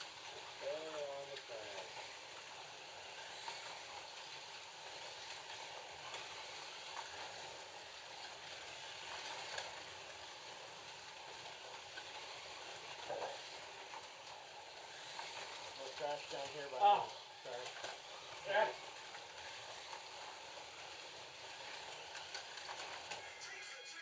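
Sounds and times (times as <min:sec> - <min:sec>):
slot cars whirring: 0:00.0 - 0:24.0.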